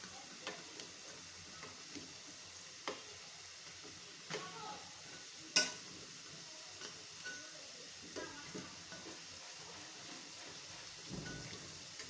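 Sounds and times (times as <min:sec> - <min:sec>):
food sizzling in a pan: 0:00.0 - 0:12.0
utensil clicking against pan: 0:00.4 - 0:00.9, 0:02.8 - 0:03.0.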